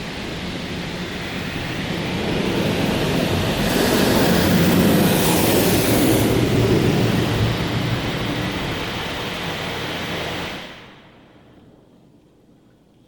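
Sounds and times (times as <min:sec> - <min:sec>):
high-pressure water jets spraying car: 0:00.2 - 0:10.7.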